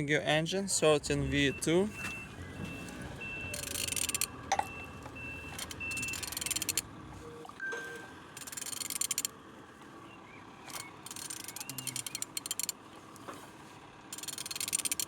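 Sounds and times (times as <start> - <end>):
ratchet wrench clicking: 3.5 - 4.7, 5.6 - 6.8, 8.4 - 9.3, 10.7 - 12.8, 14.1 - 15.0.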